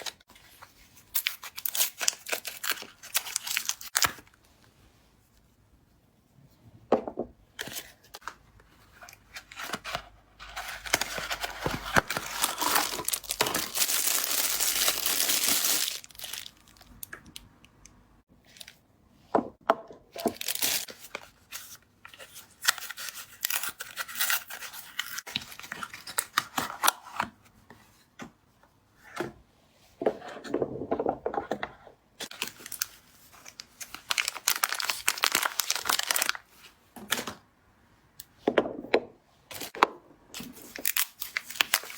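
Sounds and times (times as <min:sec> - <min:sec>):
packaging tearing and crinkling: 0:01.1 - 0:04.3, 0:10.6 - 0:17.1, 0:20.3 - 0:20.9, 0:32.3 - 0:36.4, 0:40.5 - 0:41.9.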